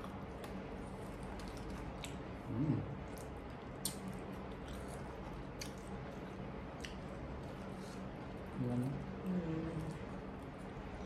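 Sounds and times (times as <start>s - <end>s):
chewing with wet mouth clicks: 0.0s - 7.7s.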